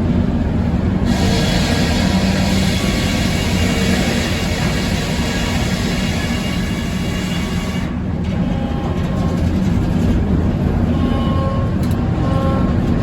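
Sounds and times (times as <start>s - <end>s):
low rumble of power unit: 0.0s - 13.0s
circular saw cutting wood: 1.1s - 7.9s.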